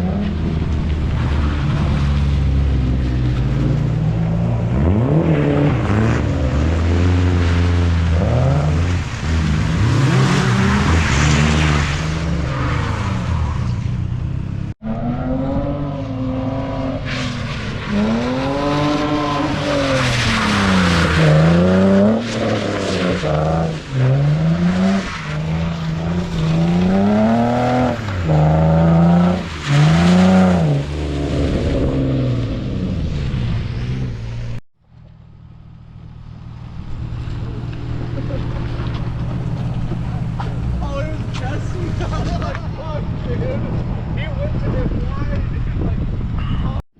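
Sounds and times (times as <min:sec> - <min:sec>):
car engine revving hard: 0:17.9 - 0:34.1.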